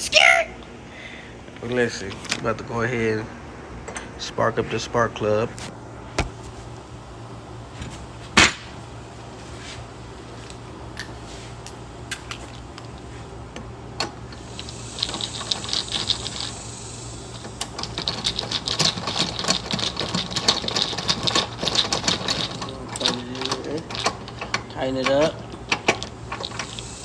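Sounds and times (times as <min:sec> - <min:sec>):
ratchet wrench clicking: 0:14.4 - 0:16.6, 0:17.6 - 0:27.0.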